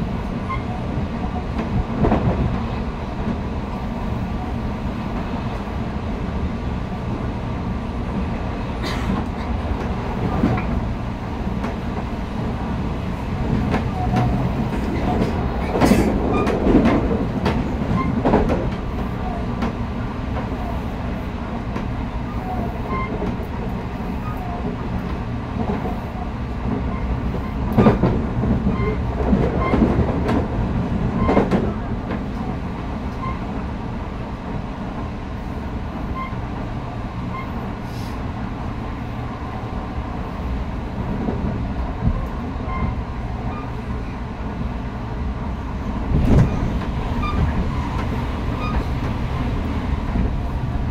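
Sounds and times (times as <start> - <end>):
loud rail clacks: 0.0 - 3.4, 8.0 - 33.7, 45.8 - 50.9
train wheels rumbling on rail: 0.0 - 50.9.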